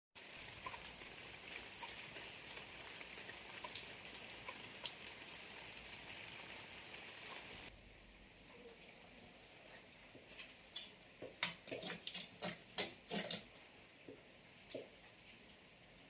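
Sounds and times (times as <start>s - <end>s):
rain falling: 0.2s - 7.7s
water drips: 0.2s - 7.7s, 10.7s - 15.7s.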